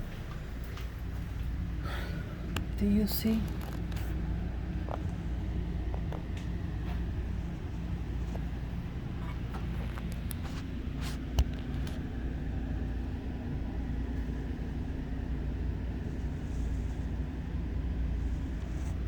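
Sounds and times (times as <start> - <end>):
air conditioner humming: 0.0 - 19.0.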